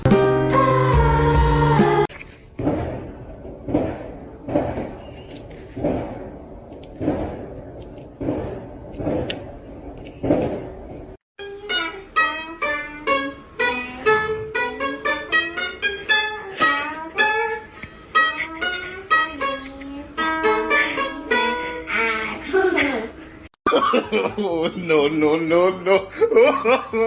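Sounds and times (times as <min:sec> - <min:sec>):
rustling thumps: 0:02.2 - 0:11.2
plucked-string music: 0:11.4 - 0:22.7.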